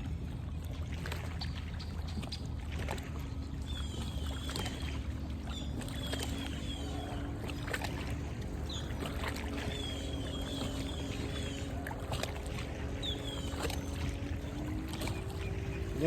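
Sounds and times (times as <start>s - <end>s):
steady low hum: 0.0s - 16.0s
birds chirping: 3.2s - 16.0s.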